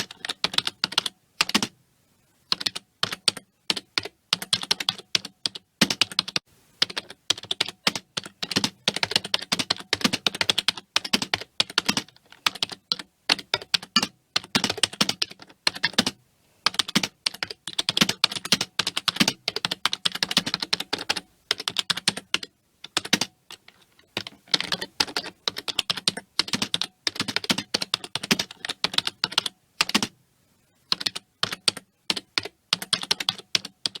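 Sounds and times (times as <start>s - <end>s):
keyboard typing clicks: 16.7s - 30.1s, 30.9s - 34.0s.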